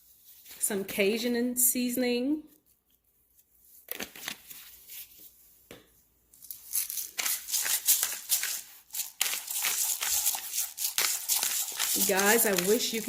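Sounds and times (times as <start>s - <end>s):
crackly rustling and crinkling: 6.3s - 13.0s.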